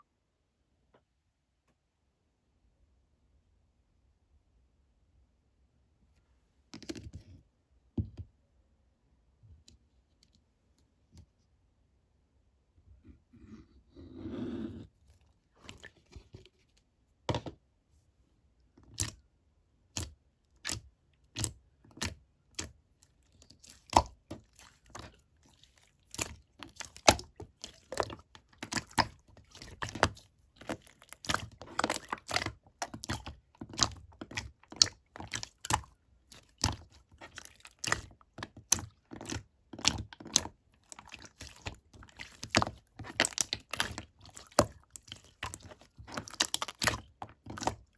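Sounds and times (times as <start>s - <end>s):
slime being squished by hand: 20.0s - 47.9s.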